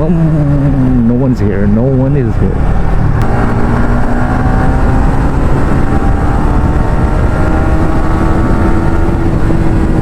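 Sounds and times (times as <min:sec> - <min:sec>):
motorcycle engine accelerating: 0:00.0 - 0:10.0
wind rush on microphone: 0:02.4 - 0:10.0.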